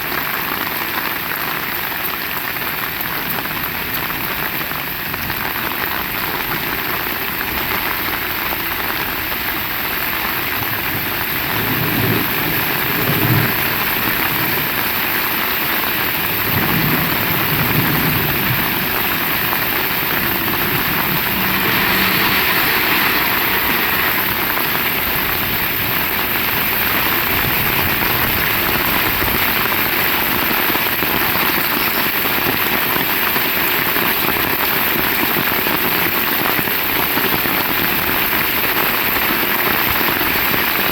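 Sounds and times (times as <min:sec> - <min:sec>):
heavy rain pattering: 0:00.0 - 0:40.9
low rumble: 0:16.3 - 0:28.8.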